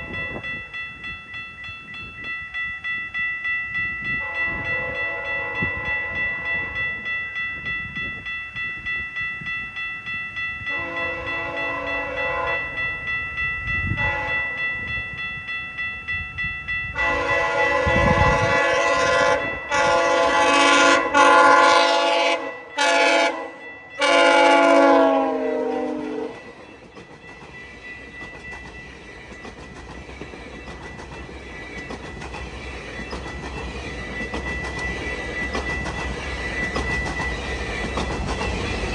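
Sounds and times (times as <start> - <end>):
train coaches rumbling: 0.0 - 38.9
train horn blasts: 4.2 - 6.8, 10.7 - 12.8, 14.0 - 14.6, 17.0 - 26.5.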